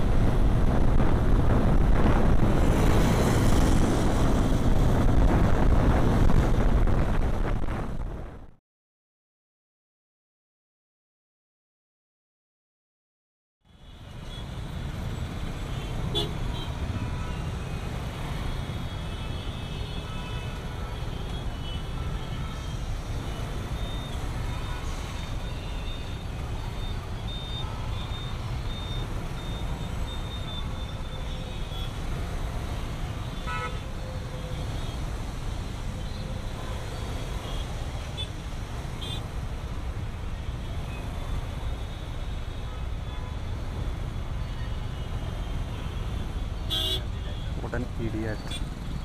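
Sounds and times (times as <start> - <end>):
road traffic rumble: 0.0 - 8.6, 13.7 - 49.0
vehicle horns honking: 15.7 - 17.8, 33.3 - 33.9, 45.7 - 47.5.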